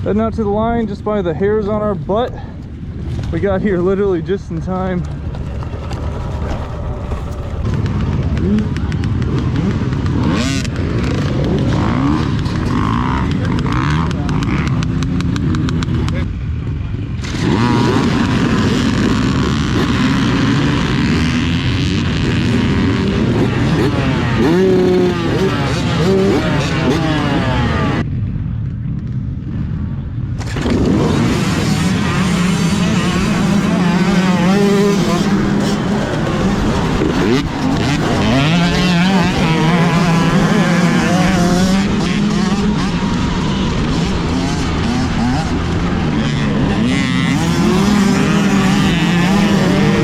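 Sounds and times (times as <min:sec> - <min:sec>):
low rumble: 0:00.0 - 0:26.2
dirt bike engines revving: 0:00.0 - 0:50.0
loud rushing noise: 0:30.3 - 0:50.0.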